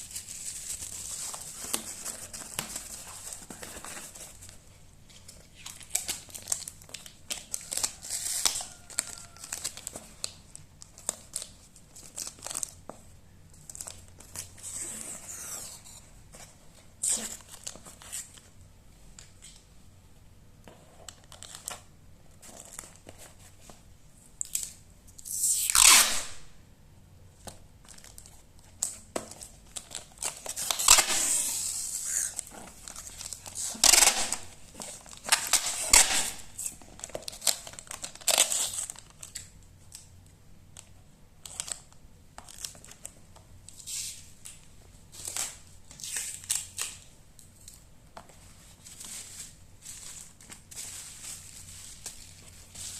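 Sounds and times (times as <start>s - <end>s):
packing material tearing and crinkling: 0.0s - 4.6s, 5.2s - 12.8s, 24.4s - 26.5s, 27.8s - 40.1s, 40.8s - 43.2s, 43.8s - 47.7s, 48.7s - 52.9s.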